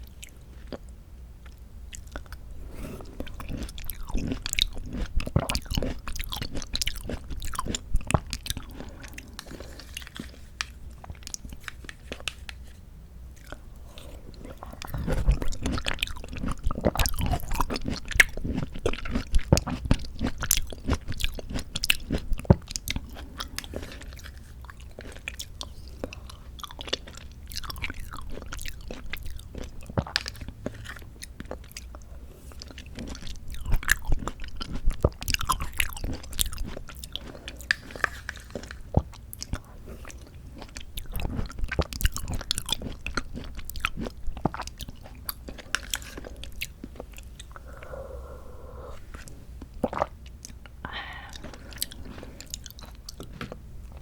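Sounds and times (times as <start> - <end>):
chewing fruit: 0.0 - 54.0.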